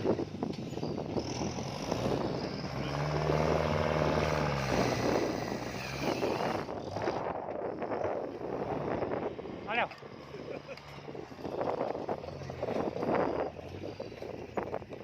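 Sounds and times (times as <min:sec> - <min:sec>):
tractor diesel engine: 0:00.0 - 0:15.0.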